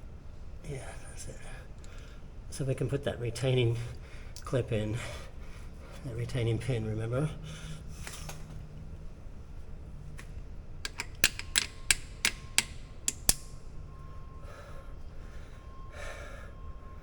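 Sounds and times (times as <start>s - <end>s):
sharp metallic taps and clicks: 10.9s - 13.5s.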